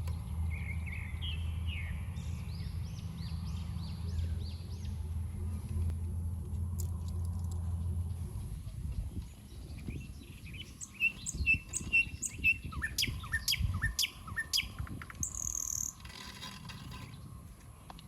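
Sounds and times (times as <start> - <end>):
small birds chirping: 9.0 - 16.1
bird trill: 9.8 - 16.3.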